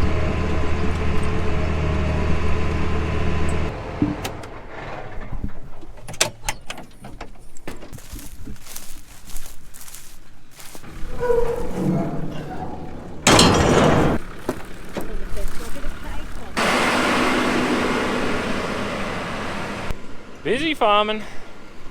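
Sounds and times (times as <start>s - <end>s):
engine running: 0.0s - 5.9s, 10.6s - 21.9s.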